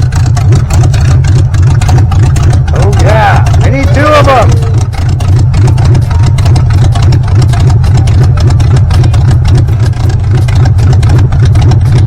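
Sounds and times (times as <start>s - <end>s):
car engine idling loudly: 0.0s - 12.0s.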